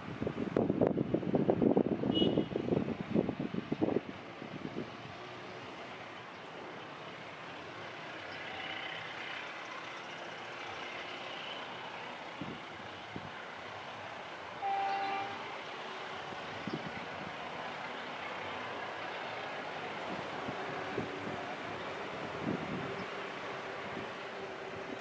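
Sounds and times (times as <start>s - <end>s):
train rumbling: 2.9s - 25.0s
train horn blast: 14.6s - 15.6s.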